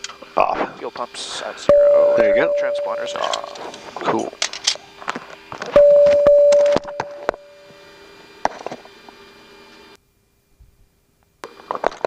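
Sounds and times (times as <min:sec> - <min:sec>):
electrical hum: 0:00.0 - 0:12.0
single-pitch electronic tone: 0:01.7 - 0:03.8, 0:05.8 - 0:07.8.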